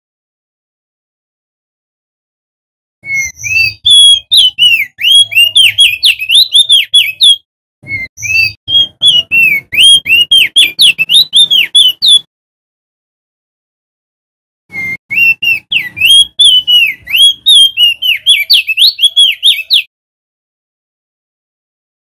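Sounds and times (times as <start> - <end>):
bird singing whistled notes: 3.0 - 12.3, 14.7 - 19.9.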